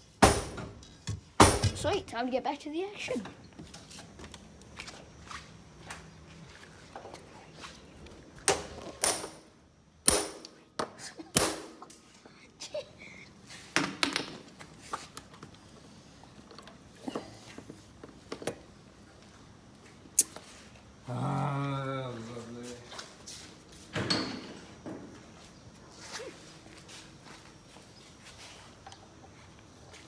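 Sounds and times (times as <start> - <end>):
hand tools knocking on panelling: 0.2 - 1.8.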